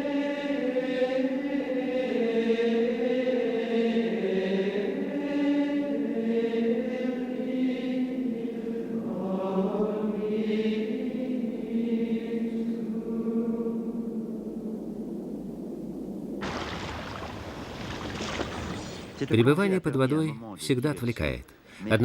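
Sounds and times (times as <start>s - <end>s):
chant-like voices holding notes: 0.0s - 16.3s.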